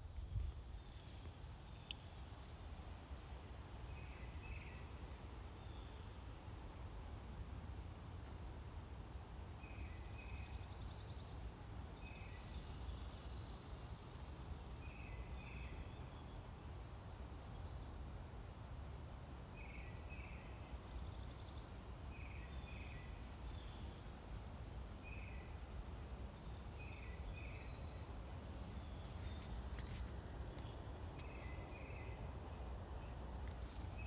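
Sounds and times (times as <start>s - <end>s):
songbirds singing: 9.6s - 24.0s, 25.0s - 34.0s.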